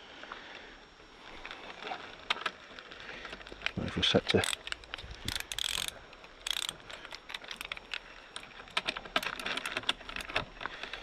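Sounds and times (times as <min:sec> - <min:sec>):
ratchet torque wrench clicking: 0:04.1 - 0:10.4.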